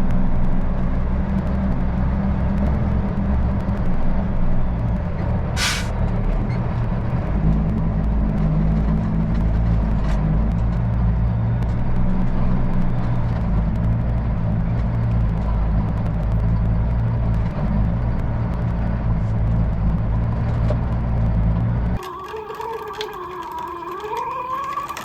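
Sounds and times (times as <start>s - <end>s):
truck diesel engine idling: 5.5s - 5.9s.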